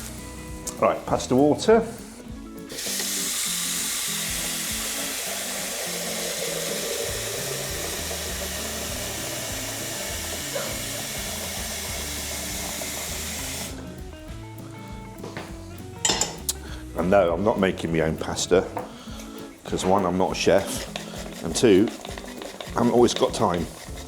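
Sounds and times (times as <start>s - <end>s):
background music: 0.0s - 24.0s
tap running into a pan: 2.8s - 13.8s, 19.8s - 24.0s.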